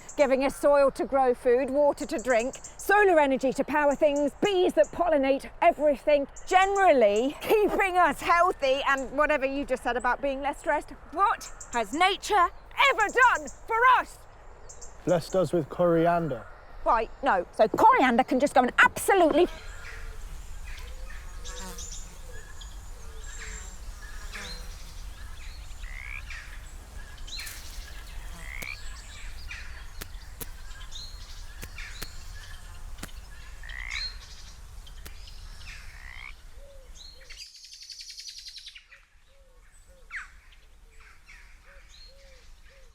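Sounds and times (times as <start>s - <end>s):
birds chirping: 1.7s - 38.6s
frogs croaking: 19.4s - 37.4s.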